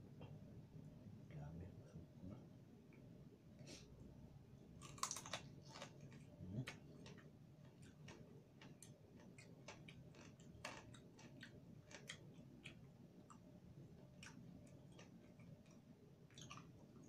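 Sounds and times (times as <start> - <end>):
low room hum: 0.0 - 17.0
crunchy chewing: 4.8 - 17.0.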